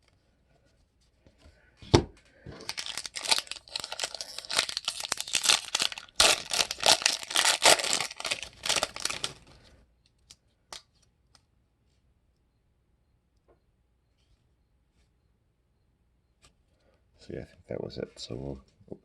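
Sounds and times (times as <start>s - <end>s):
foil wrapper tearing and crinkling: 2.6s - 9.6s.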